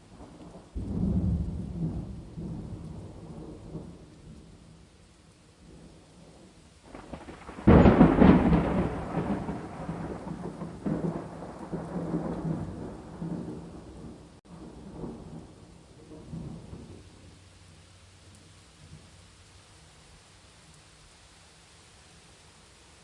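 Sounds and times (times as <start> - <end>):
steady rain: 0.0 - 23.0
thunderclap and rumble: 0.1 - 4.8, 5.6 - 17.2.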